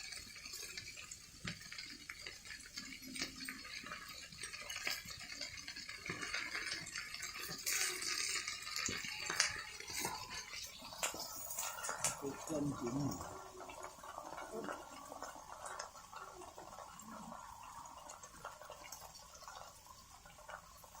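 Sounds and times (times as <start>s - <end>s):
steady watery hiss: 0.0s - 21.0s
cookware clinking and knocking: 4.4s - 13.4s.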